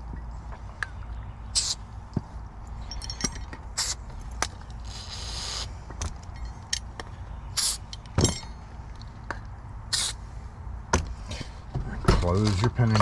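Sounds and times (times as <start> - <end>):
aerosol spray hissing: 1.6 - 1.8, 4.9 - 5.7, 7.6 - 7.8, 9.9 - 10.2.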